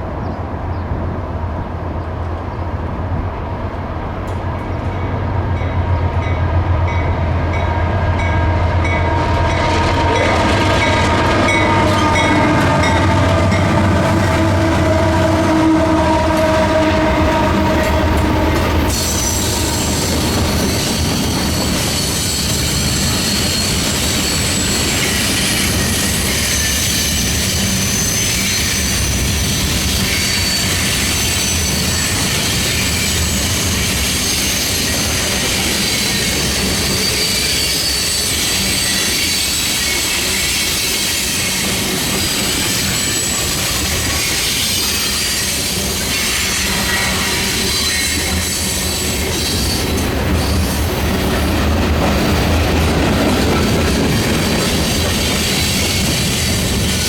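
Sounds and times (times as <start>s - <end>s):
train wheels rumbling on rail: 0.0s - 57.0s
high-pitched wheel squeal: 14.2s - 50.8s.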